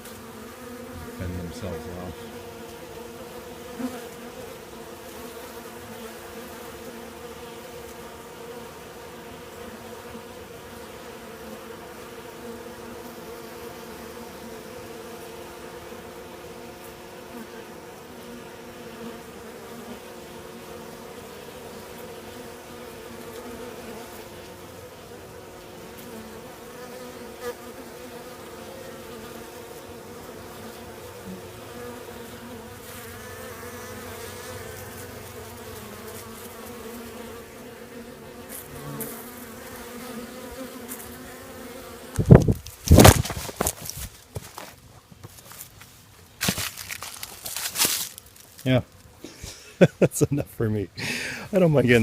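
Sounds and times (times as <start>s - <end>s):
bees and wasps buzzing: 0.0s - 52.0s.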